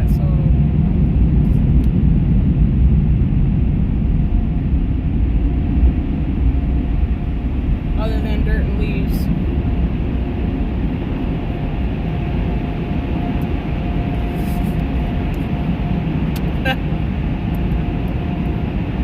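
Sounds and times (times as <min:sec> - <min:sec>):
car wash air dryers blowing: 0:05.6 - 0:17.2.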